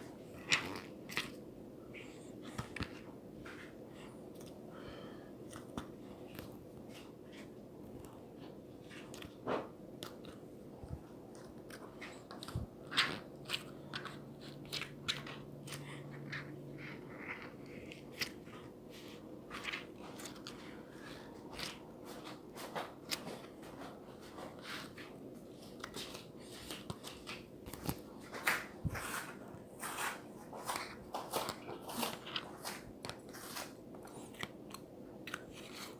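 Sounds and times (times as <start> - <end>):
faint steady hum: 0.0 - 35.9.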